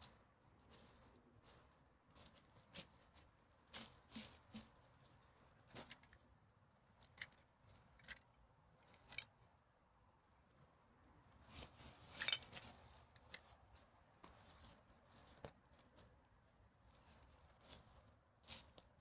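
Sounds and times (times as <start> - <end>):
rustling of forest litter: 0.0 - 6.0, 11.3 - 19.0.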